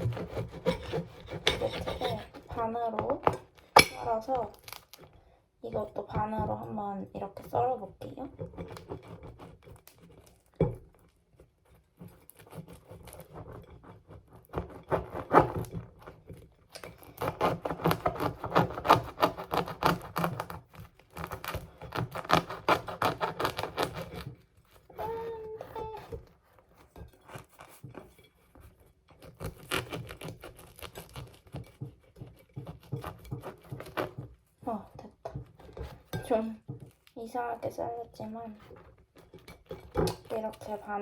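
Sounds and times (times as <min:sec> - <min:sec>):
knife sawing through bread crust: 0:00.0 - 0:02.7, 0:08.4 - 0:10.4, 0:11.4 - 0:34.8.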